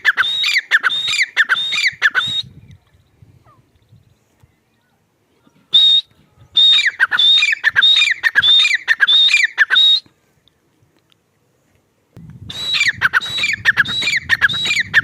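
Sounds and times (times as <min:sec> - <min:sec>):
partridge whistled calls: 0:00.0 - 0:04.8, 0:05.5 - 0:10.1, 0:12.5 - 0:15.0.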